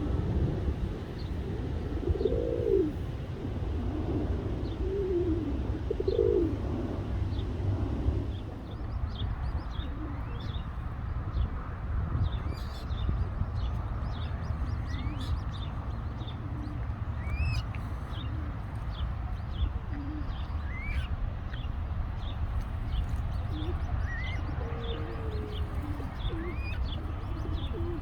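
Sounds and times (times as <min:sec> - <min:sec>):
steady low rumble: 0:00.0 - 0:28.0
small birds chirping: 0:08.3 - 0:11.6, 0:12.2 - 0:28.0
whistled bird calls: 0:17.2 - 0:17.7, 0:20.6 - 0:21.1.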